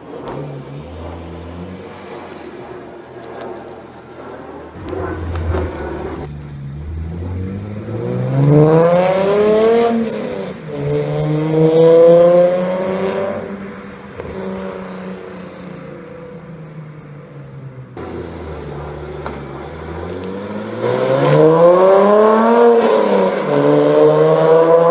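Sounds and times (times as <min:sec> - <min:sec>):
car engine accelerating past: 0:04.7 - 0:16.1, 0:18.0 - 0:24.9.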